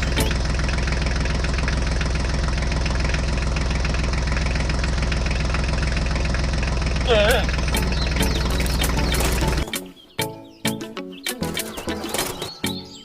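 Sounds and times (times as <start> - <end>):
tractor engine idling: 0.0 - 10.2.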